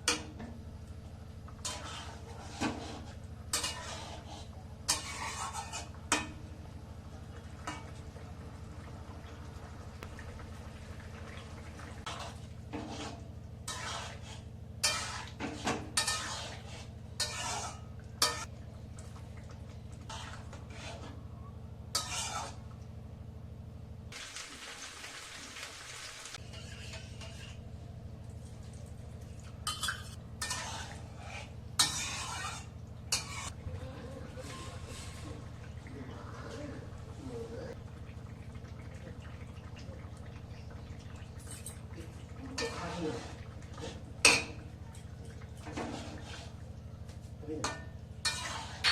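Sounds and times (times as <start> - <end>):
steady low hum: 0.0 - 24.2, 26.4 - 48.9
metal spoon scraping a pot: 1.5 - 6.4, 12.0 - 18.5, 20.1 - 21.2, 21.9 - 22.6, 26.4 - 27.6, 29.6 - 33.6, 34.4 - 35.4, 42.6 - 44.6, 45.6 - 46.6, 47.6 - 48.9.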